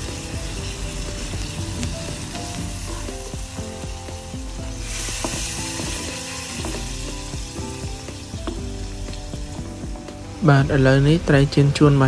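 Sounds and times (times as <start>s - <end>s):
fish sizzling in sauce: 0.0s - 11.5s
spatula scraping a pan: 4.8s - 7.4s.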